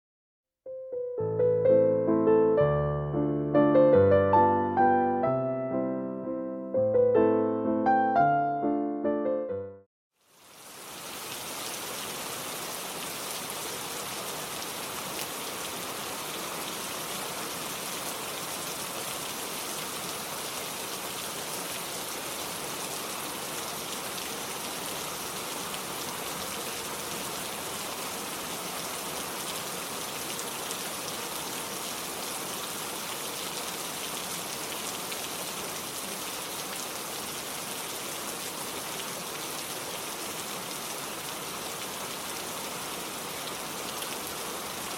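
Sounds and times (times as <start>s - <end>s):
rain pattering: 10.2s - 44.9s.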